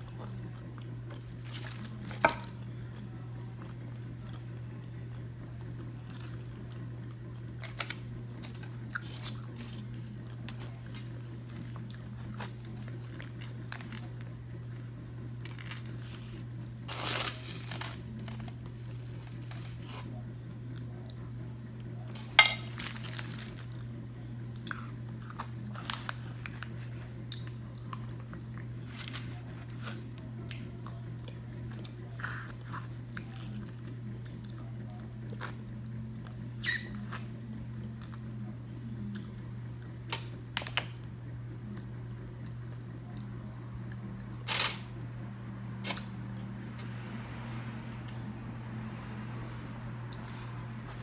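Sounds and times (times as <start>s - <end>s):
steady low hum: 0.0s - 51.0s
person chewing wet mouth sounds: 3.0s - 7.5s.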